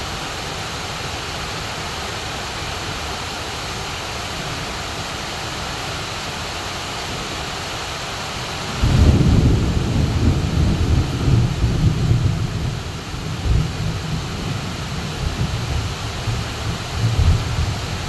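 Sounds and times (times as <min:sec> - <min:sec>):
heavy rain on leafy trees: 0:00.0 - 0:18.0
thunder rumbling: 0:08.7 - 0:18.0.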